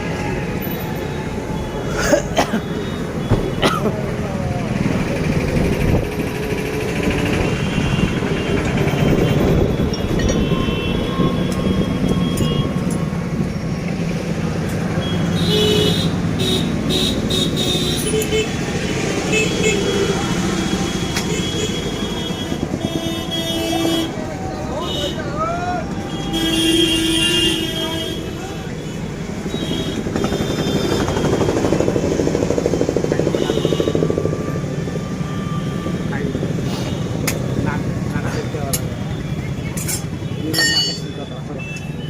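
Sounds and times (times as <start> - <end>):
road traffic rumble: 0.0 - 42.0
vehicle horn toots: 7.6 - 12.8, 26.1 - 28.5.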